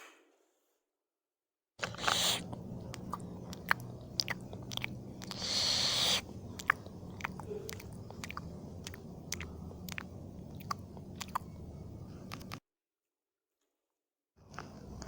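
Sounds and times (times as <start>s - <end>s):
chewing noodles: 1.8s - 12.6s, 14.4s - 15.0s.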